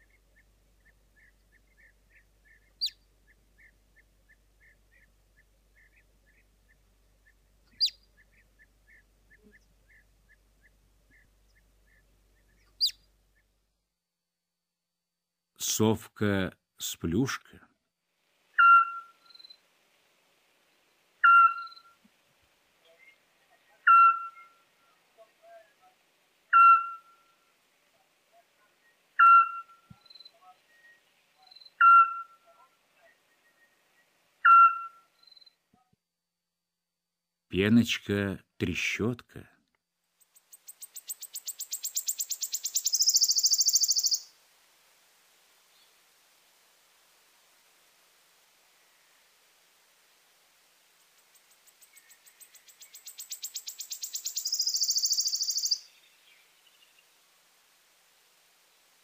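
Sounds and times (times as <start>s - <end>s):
marmot alarm whistles: 18.6s - 19.2s, 21.2s - 21.9s, 23.9s - 24.5s, 26.5s - 27.2s, 29.2s - 29.9s, 31.8s - 32.4s, 34.4s - 35.1s, 53.6s - 55.8s
owl whistled calls: 18.6s - 19.5s, 21.2s - 22.0s, 23.8s - 24.6s, 26.5s - 27.3s, 29.2s - 30.2s, 30.8s - 32.4s, 34.4s - 35.1s, 40.7s - 44.3s, 51.9s - 55.9s.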